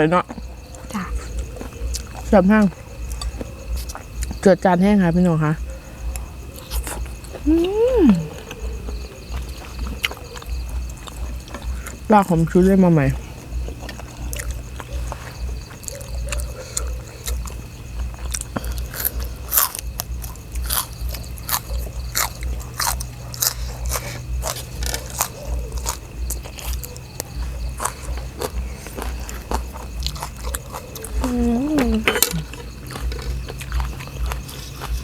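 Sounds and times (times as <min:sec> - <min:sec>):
chewing and biting food: 0:00.3 - 0:04.4, 0:05.6 - 0:35.0
sharp food crunches: 0:13.8 - 0:31.3, 0:32.0 - 0:35.0.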